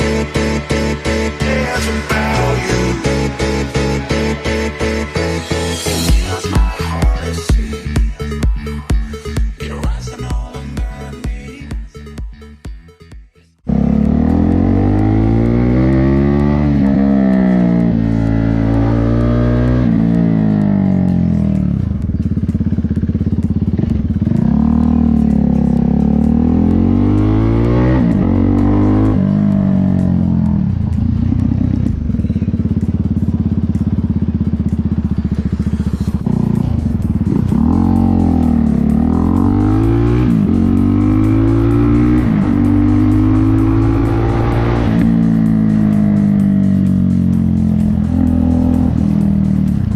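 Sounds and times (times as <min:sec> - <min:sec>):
motorcycle engine revving: 0:13.6 - 0:49.9.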